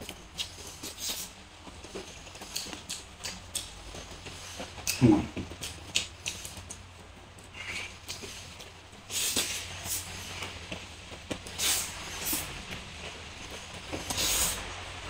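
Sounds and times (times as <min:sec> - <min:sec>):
wet chewing: 0:00.4 - 0:06.8
lip-smacking clicks: 0:02.5 - 0:03.8, 0:04.8 - 0:06.8
throaty mouth sound: 0:04.8 - 0:06.4.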